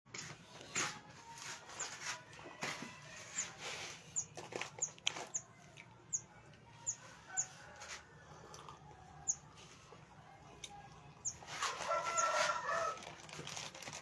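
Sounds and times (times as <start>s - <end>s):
small birds chirping: 1.3s - 2.2s, 2.9s - 13.0s.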